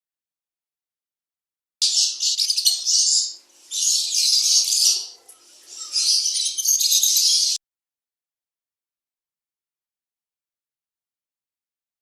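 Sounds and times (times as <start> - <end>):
budgerigars twittering: 1.8 - 7.6.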